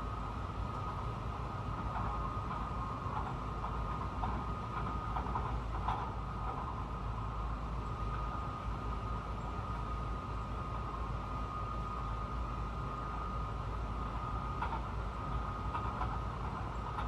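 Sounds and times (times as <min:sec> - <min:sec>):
train high whine: 0:00.0 - 0:17.0
train low rumble: 0:00.0 - 0:17.0
light rattles and squeaks: 0:14.3 - 0:17.0.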